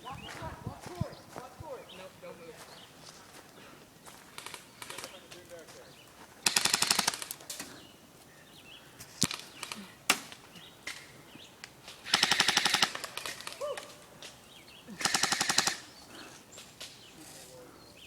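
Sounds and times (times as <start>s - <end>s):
airsoft rifle full-auto bursts: 6.4s - 7.3s, 12.0s - 13.4s, 15.0s - 15.9s.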